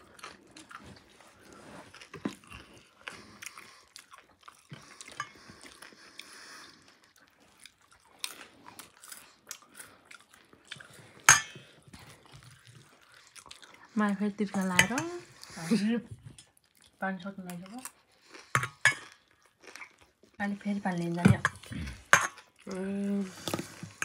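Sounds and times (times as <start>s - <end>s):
crunchy chewing: 0.0s - 14.0s, 17.6s - 20.4s.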